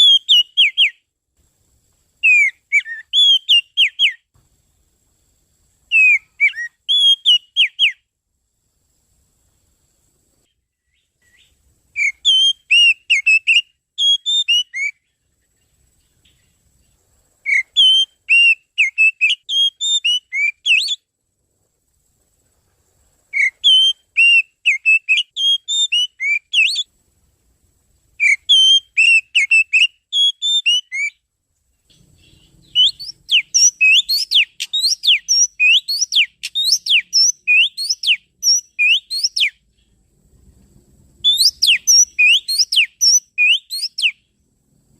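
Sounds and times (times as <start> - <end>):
bird whistling song: 0.0 - 1.1, 2.2 - 4.3, 5.9 - 8.1, 10.5 - 16.6, 17.4 - 21.1, 23.3 - 26.9, 28.2 - 31.2, 31.9 - 40.0, 41.2 - 44.4.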